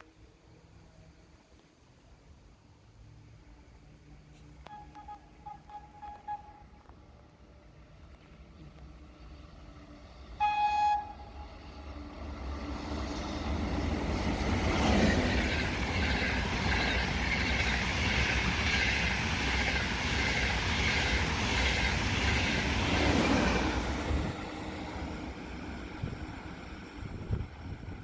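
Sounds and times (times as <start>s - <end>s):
short high horn toot: 4.6s - 6.9s.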